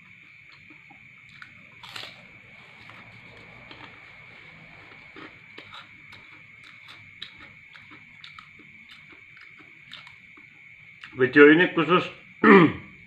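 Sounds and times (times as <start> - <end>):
man chewing rice: 0.0 - 11.2.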